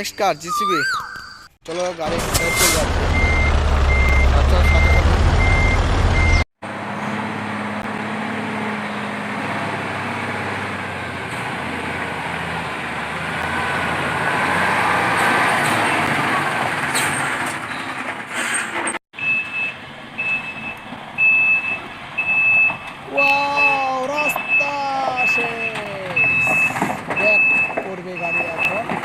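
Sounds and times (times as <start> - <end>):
reversing alarm beeping: 2.3 - 6.4, 19.2 - 28.9.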